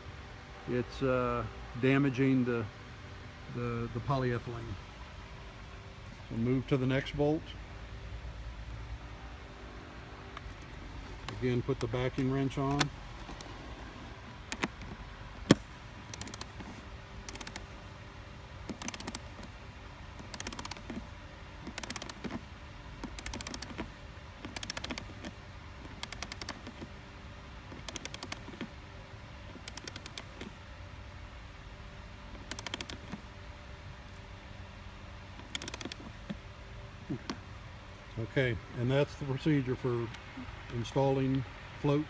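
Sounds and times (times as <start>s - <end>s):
torque wrench ratchet clicking: 15.4s - 16.6s, 17.3s - 17.7s, 18.7s - 19.5s, 20.2s - 21.0s, 21.7s - 22.4s, 23.0s - 25.3s, 25.9s - 26.8s, 27.7s - 28.7s, 29.6s - 30.5s, 32.4s - 33.1s, 35.4s - 36.1s.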